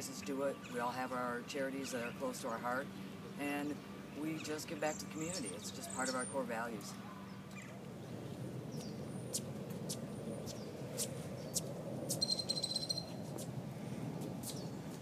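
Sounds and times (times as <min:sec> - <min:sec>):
small birds chirping: 0:00.0 - 0:13.5, 0:14.4 - 0:15.0
bird trill: 0:08.7 - 0:13.2.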